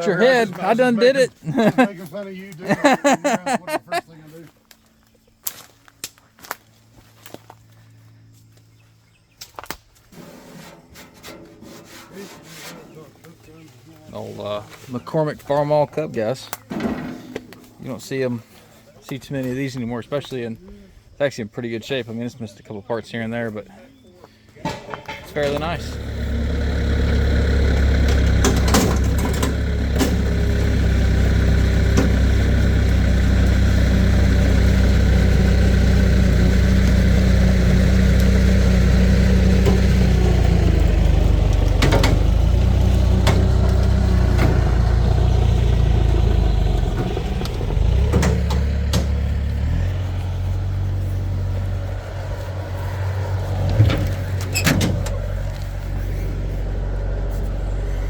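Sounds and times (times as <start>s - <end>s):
metal clanks: 24.6s - 26.4s, 27.7s - 33.1s, 39.4s - 49.7s
vehicle engine running: 24.7s - 58.0s.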